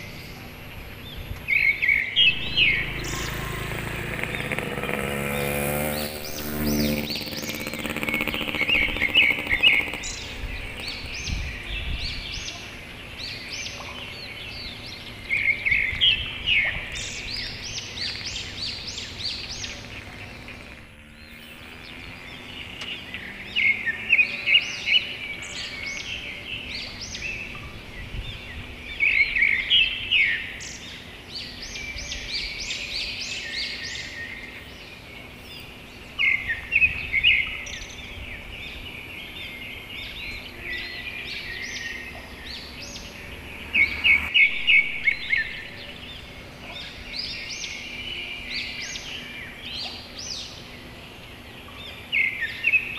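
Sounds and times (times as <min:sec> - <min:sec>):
small birds chirping: 0:00.0 - 0:52.9
low rumbling background: 0:02.2 - 0:05.4.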